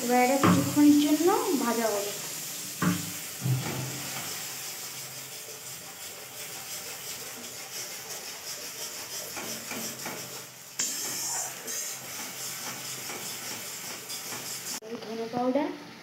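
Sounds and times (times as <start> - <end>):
paste sizzling in oil: 0.0 - 14.8
spatula scraping pan: 0.4 - 14.8.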